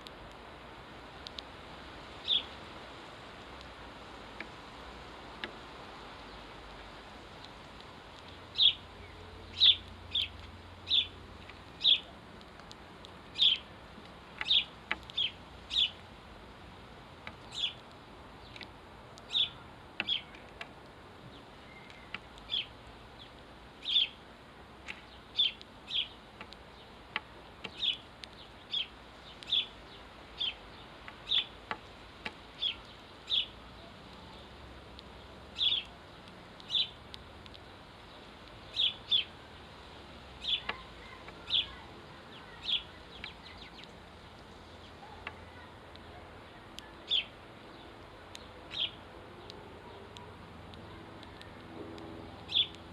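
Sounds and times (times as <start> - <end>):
sparrow chirping: 2.2 - 2.6, 8.2 - 12.1, 13.3 - 13.7, 14.3 - 16.1, 17.2 - 17.8, 18.4 - 20.6, 21.3 - 24.2, 24.9 - 31.6, 32.6 - 37.1, 38.0 - 39.4, 40.4 - 46.2, 46.8 - 50.0, 52.4 - 52.8.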